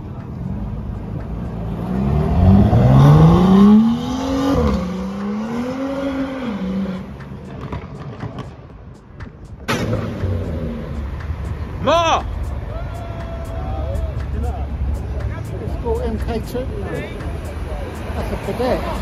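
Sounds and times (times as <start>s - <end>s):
car engine accelerating hard: 0.5s - 7.7s.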